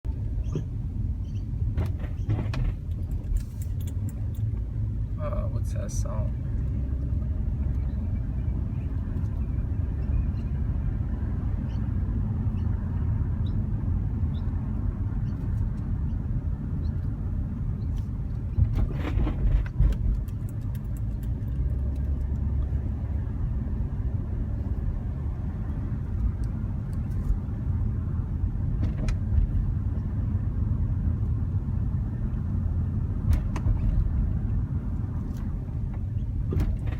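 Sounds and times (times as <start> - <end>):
car low rumble: 0.0 - 36.9
car front end squeaks: 0.4 - 2.8.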